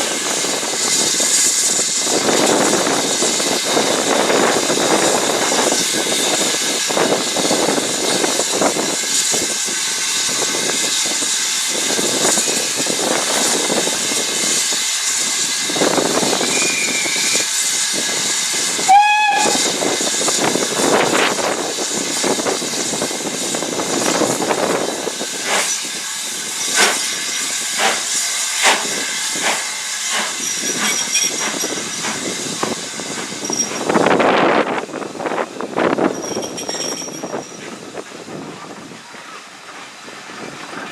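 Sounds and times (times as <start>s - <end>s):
hiss of steam: 0.0s - 36.6s
steam train running: 0.0s - 40.9s
train whistle blast: 16.4s - 17.5s, 18.8s - 19.8s.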